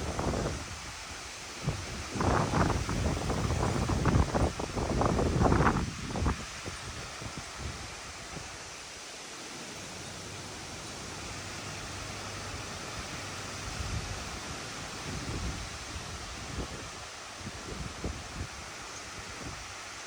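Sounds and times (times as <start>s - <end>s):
wind buffeting microphone: 0.0s - 8.6s, 12.9s - 19.9s
strong gusty wind: 0.0s - 8.8s, 11.1s - 20.0s.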